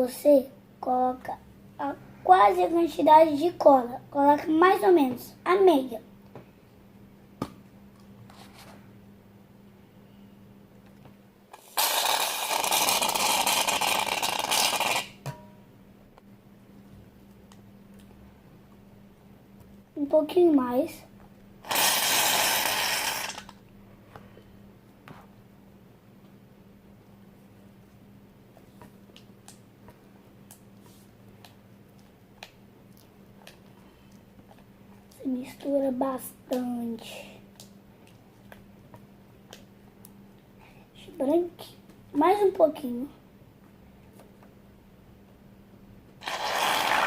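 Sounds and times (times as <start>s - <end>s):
low steady hum: 0.0s - 46.2s
aerosol can hissing: 11.6s - 15.0s, 21.7s - 23.5s.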